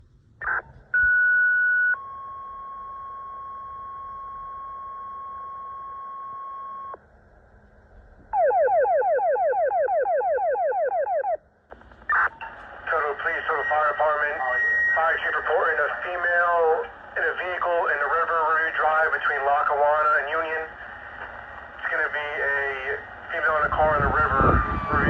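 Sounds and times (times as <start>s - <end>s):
two-tone radio alert tones: 12.1s - 19.1s.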